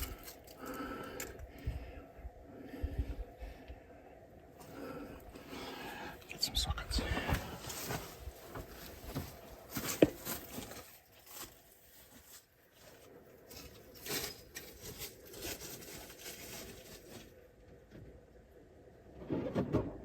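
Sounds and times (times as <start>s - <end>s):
rustling of tools being sorted: 0.0s - 1.5s, 7.1s - 17.3s.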